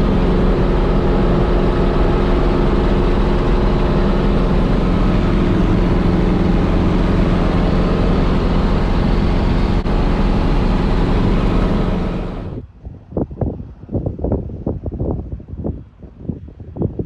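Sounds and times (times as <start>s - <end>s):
helicopter engine and rotor: 0.0s - 12.6s.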